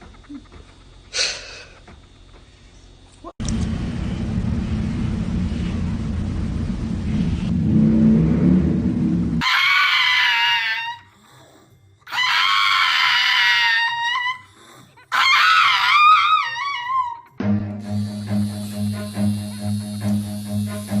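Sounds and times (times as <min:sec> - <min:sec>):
low rumbling noise: 0:03.4 - 0:09.4
high-pitched screams: 0:09.4 - 0:11.1, 0:12.1 - 0:14.5.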